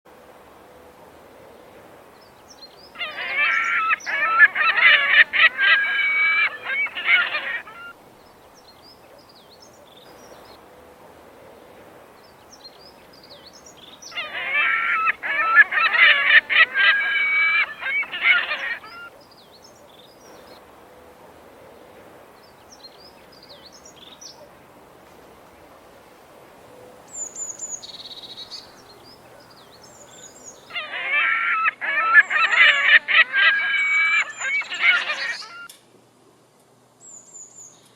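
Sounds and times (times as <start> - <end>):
magpies chattering: 3.0 - 7.9, 14.1 - 19.1, 27.1 - 35.7.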